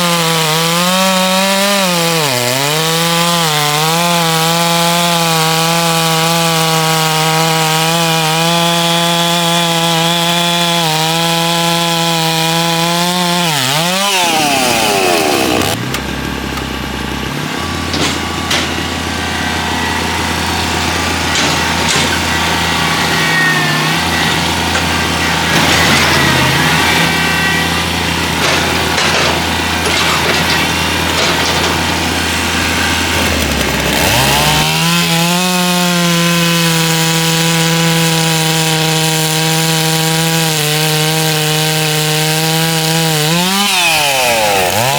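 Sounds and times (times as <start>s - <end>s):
chainsaw cutting log: 0.0s - 44.9s
knocks and clicks: 28.3s - 32.2s.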